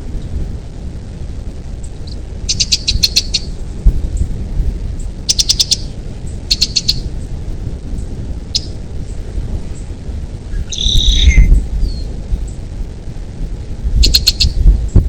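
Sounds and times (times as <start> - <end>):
steady low rumble: 0.0 - 15.0
bird chirping: 2.0 - 3.5, 5.3 - 7.1, 8.5 - 9.2, 10.5 - 12.1, 14.0 - 14.6.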